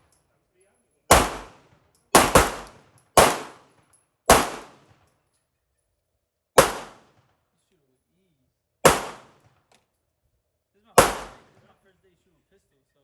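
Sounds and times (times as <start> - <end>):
pistol shots: 1.1 - 3.7, 4.3 - 4.9, 6.6 - 7.1, 8.8 - 9.5, 11.0 - 11.6.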